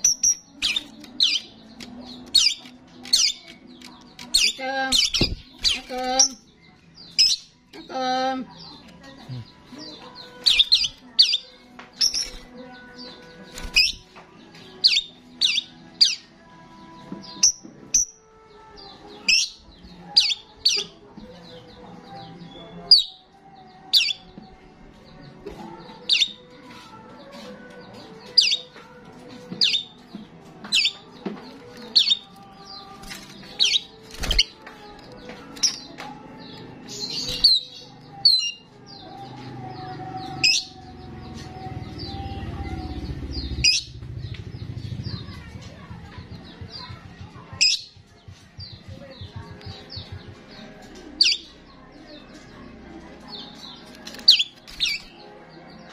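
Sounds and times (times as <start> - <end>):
starling chirping: 0.0 - 7.6, 9.4 - 14.1, 30.7 - 34.6, 41.6 - 45.5.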